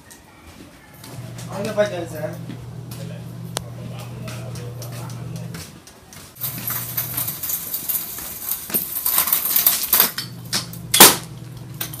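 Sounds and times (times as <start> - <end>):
small metal objects clinking: 6.4 - 12.0.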